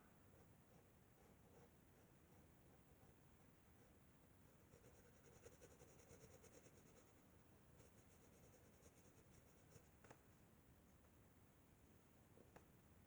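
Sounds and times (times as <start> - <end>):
pencil scratching on paper: 4.6 - 7.2.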